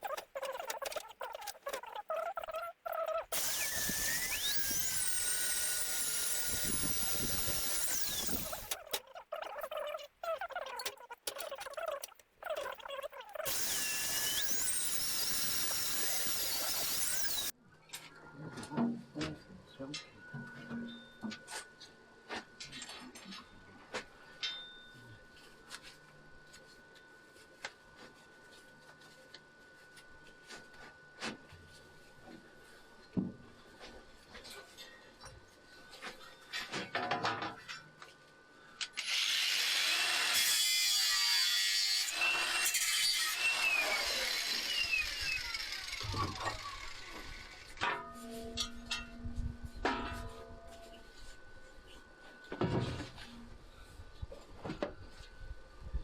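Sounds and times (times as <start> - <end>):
magnetic drill motor whining: 3.3 - 9.1, 13.4 - 17.5, 39.0 - 47.8.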